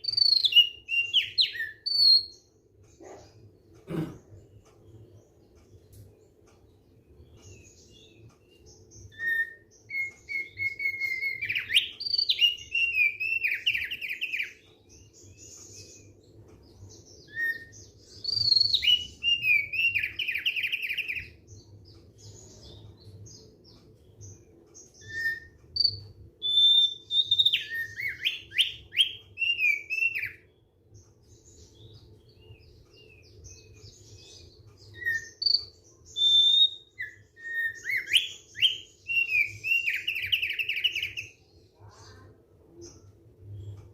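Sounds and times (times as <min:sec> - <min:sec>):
bird singing whistled phrases: 0:00.0 - 0:02.3, 0:09.1 - 0:14.6, 0:17.2 - 0:21.4, 0:25.0 - 0:30.4, 0:34.9 - 0:41.4
faint low hum: 0:41.0 - 0:43.9.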